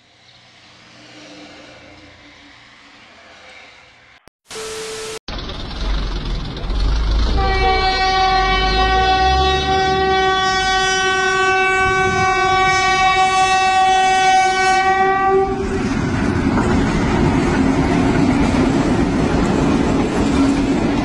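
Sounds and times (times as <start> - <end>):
train rumbling along rails: 5.3 - 21.0
train horn blowing: 7.4 - 15.8.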